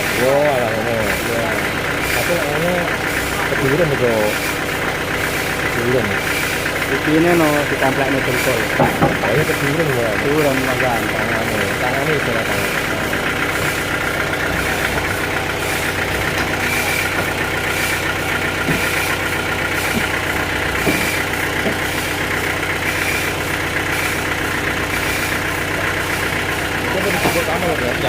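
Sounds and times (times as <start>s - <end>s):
sawmill engine running: 0.0s - 28.0s.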